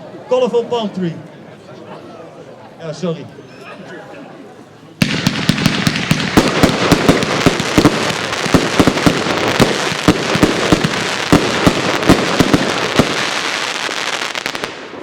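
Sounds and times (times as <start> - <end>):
fireworks shots and bursts: 5.0 - 15.0.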